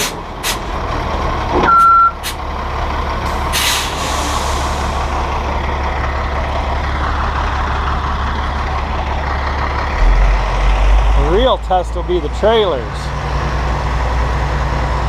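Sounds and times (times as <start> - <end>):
diesel engine idling: 0.0 - 15.0
air brakes hissing: 3.3 - 5.2.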